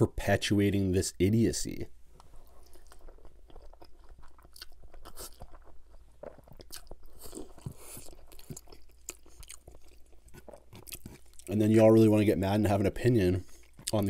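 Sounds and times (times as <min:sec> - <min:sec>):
wet chewing: 0:02.2 - 0:11.6, 0:13.4 - 0:14.0.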